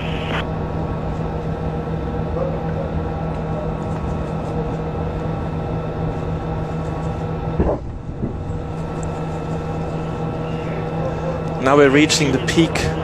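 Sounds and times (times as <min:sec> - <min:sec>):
short radio chirp: 0:00.0 - 0:00.4
constant radio tones: 0:00.0 - 0:13.0
radio channel hiss and hum: 0:00.0 - 0:13.0.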